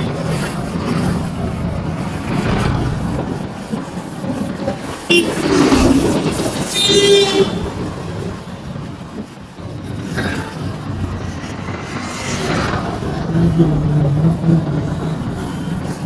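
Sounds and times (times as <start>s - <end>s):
road traffic noise: 0.0s - 16.0s
vehicle horn honking: 5.1s - 8.0s.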